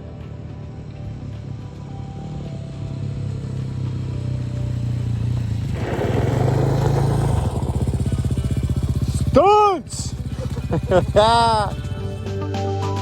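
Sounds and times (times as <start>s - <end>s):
dirt bike engine running: 2.4s - 12.4s
loud rush of noise: 5.7s - 9.2s.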